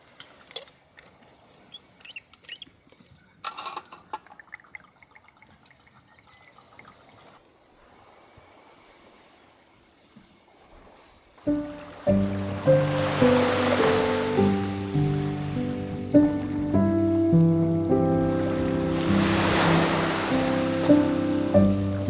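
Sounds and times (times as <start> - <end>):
insects buzzing: 0.6 - 22.0.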